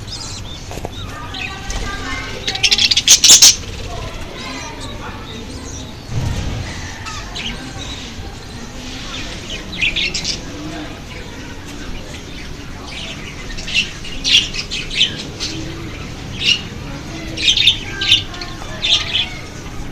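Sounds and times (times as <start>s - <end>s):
birds chirping: 0.0s - 19.9s.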